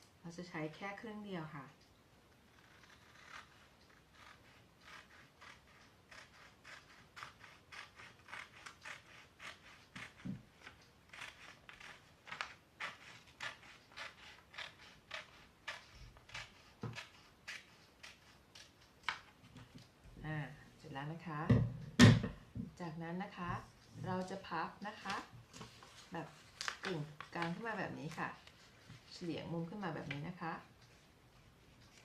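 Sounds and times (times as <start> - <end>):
scissors snipping paper: 2.5 - 19.2.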